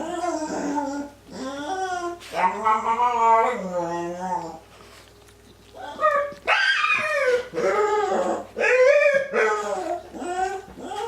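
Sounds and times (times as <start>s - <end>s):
small dog whining and yipping: 5.8s - 11.0s.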